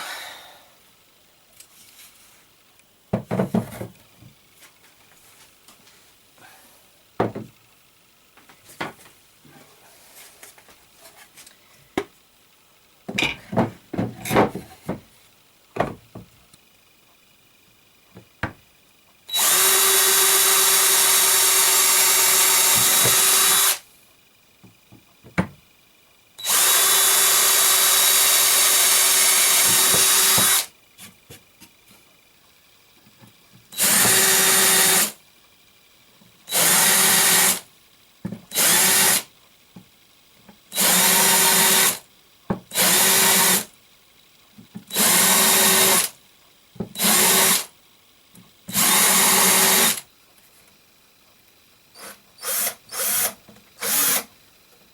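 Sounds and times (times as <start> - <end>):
power drill running: 19.3 - 23.9, 26.4 - 30.8, 33.7 - 35.2, 36.5 - 37.7, 38.5 - 39.3, 40.7 - 42.1, 42.7 - 43.8, 44.9 - 46.2, 46.9 - 47.7, 48.7 - 50.1, 51.9 - 54.4.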